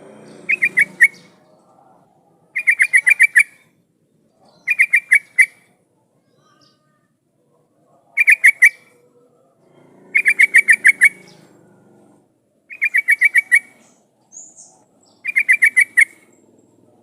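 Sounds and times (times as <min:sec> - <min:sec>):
bulbul chirping: 0:00.4 - 0:01.4, 0:02.6 - 0:03.7, 0:04.5 - 0:05.6, 0:08.2 - 0:08.8, 0:10.1 - 0:11.4, 0:12.7 - 0:16.4.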